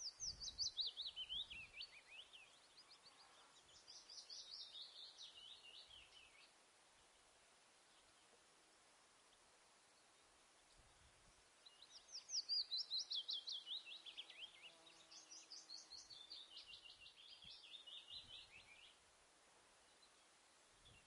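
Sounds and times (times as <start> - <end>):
bird singing whistled notes: 0.0 - 6.5, 11.6 - 19.0.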